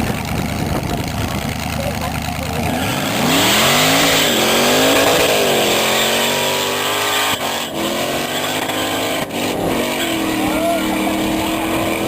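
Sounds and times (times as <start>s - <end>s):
car engine revving hard: 2.6s - 12.0s
tyres squealing: 2.7s - 12.0s.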